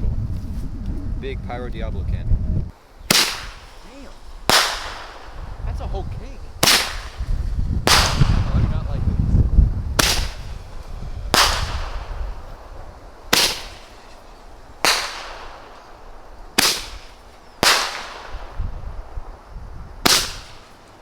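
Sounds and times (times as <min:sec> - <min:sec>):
firework bangs echoing: 0:03.0 - 0:06.0, 0:06.6 - 0:09.0, 0:10.0 - 0:19.2, 0:20.0 - 0:20.8.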